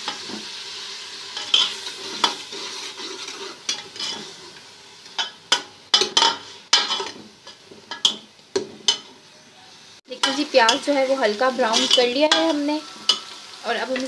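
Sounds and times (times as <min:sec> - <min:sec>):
paste sizzling in a pot: 0:00.0 - 0:14.0
spoon scraping a pot: 0:01.4 - 0:04.6, 0:06.0 - 0:07.2, 0:10.2 - 0:14.0.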